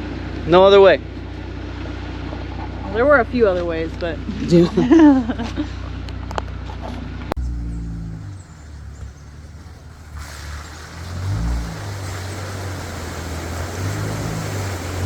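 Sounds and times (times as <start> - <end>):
engine running at low revs: 5.3 - 15.0
water rushing and splashing: 7.5 - 15.0.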